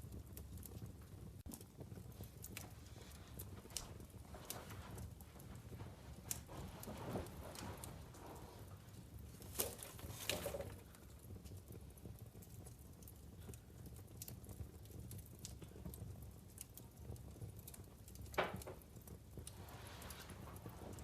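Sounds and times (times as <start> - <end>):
fire popping: 0.0 - 21.0
wood fire crackling: 0.0 - 21.0.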